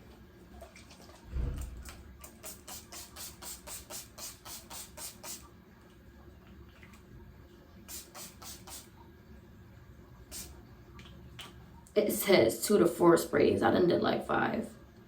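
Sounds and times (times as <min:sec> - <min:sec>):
spray bottle misting: 0:01.6 - 0:05.5, 0:07.9 - 0:08.9, 0:10.3 - 0:10.6.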